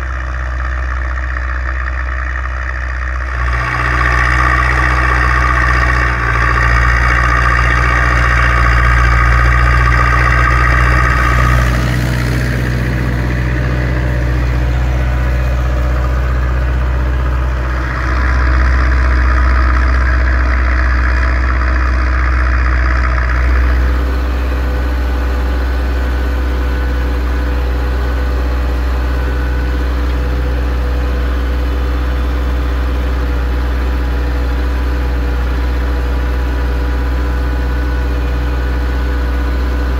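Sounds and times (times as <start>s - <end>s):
high-pitched noise: 0.0s - 24.2s
tractor diesel engine running: 0.0s - 39.9s.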